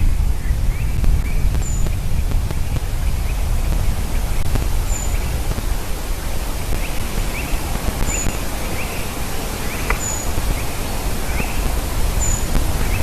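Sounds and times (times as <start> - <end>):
bird chirps: 0.0 - 13.0
wind rumble on microphone: 0.0 - 13.0
high-pitched bird calls: 3.0 - 13.0.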